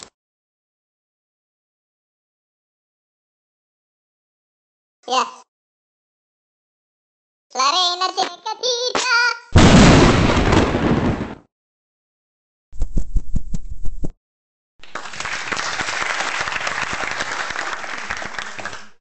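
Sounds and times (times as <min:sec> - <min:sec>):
crowd applause: 0:14.8 - 0:19.0
separate claps: 0:14.8 - 0:19.0.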